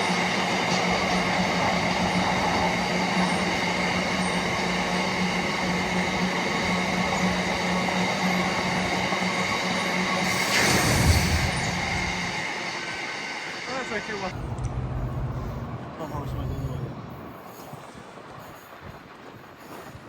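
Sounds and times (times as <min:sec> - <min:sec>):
train low hum: 0:00.0 - 0:20.0
loud noisy surge: 0:10.2 - 0:14.3.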